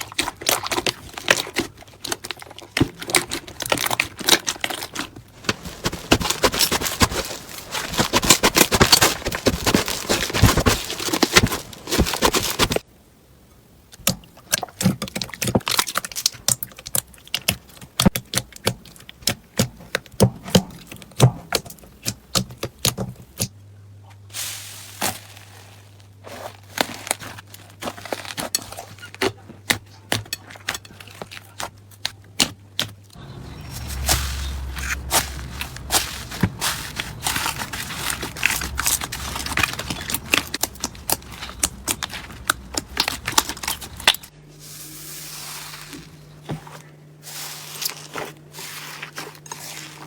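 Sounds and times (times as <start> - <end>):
slime crackling and popping: 34.6 - 44.3.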